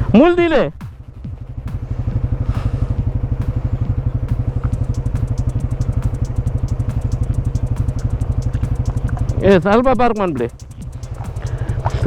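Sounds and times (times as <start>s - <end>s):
motorcycle engine idling: 0.0s - 12.0s
light regular ticking: 0.8s - 12.0s.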